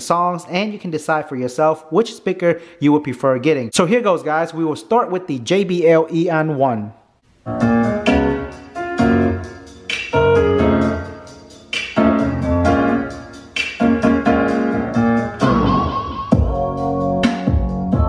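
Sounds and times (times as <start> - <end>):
piano chords over speaker: 7.4 - 18.0.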